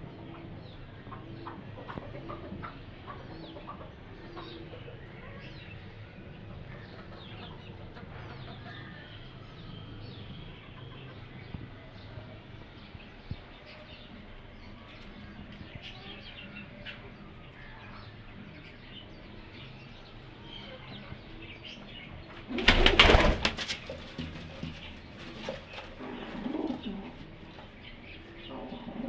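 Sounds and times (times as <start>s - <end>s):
pigeons cooing: 0.0s - 12.1s, 20.0s - 29.0s
small birds chirping: 0.0s - 29.0s
loud rustling burst: 22.6s - 24.2s.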